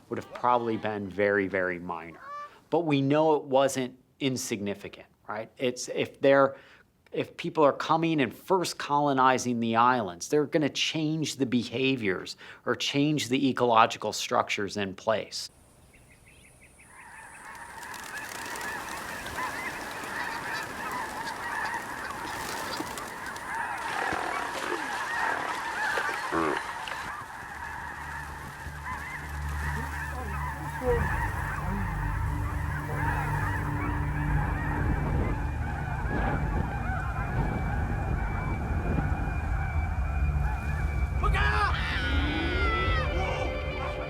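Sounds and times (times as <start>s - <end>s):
geese honking: 0.0s - 2.6s, 16.4s - 44.0s.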